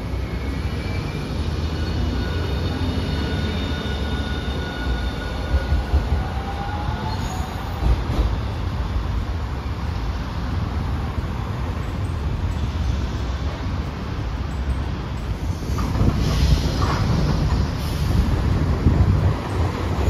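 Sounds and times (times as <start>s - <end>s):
high wheel squeal: 0.0s - 7.8s
streetcar rumbling on track: 0.0s - 20.0s.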